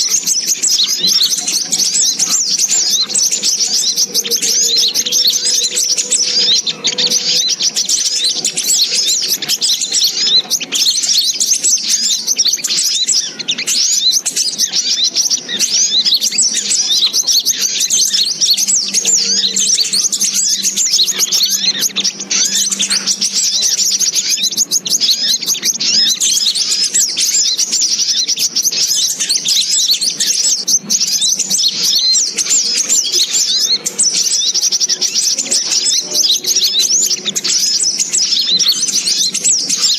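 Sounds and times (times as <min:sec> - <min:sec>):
birds twittering: 0:00.0 - 0:39.9.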